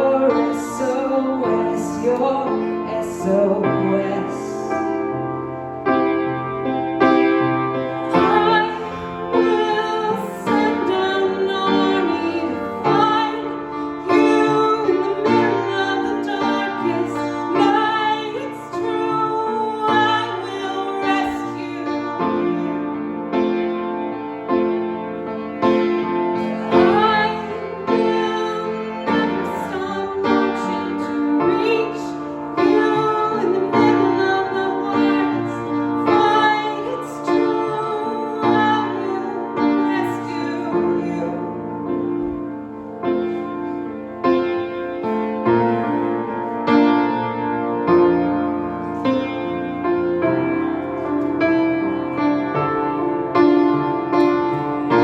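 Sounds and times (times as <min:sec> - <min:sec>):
woman singing: 0:00.0 - 0:05.0, 0:08.0 - 0:22.8, 0:26.4 - 0:42.0
piano music: 0:00.0 - 0:55.0.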